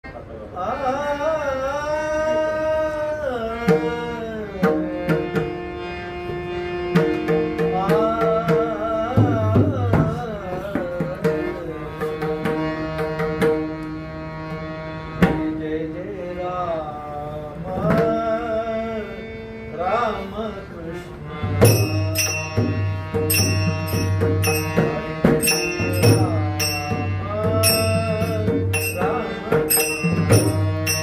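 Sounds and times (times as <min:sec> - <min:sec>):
harmonium accompaniment: 0:00.0 - 0:31.0
man singing devotional song: 0:00.5 - 0:05.9, 0:06.8 - 0:13.1, 0:14.4 - 0:31.0
hand drum strokes: 0:21.6 - 0:31.0.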